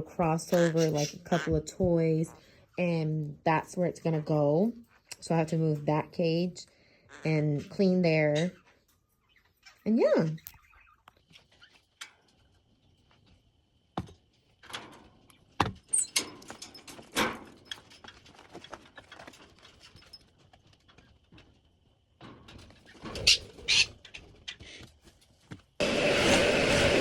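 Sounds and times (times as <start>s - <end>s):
birds squeaking: 0.0s - 3.0s, 6.2s - 13.0s, 22.5s - 24.9s
bird cage knocks and rattles: 14.0s - 21.6s.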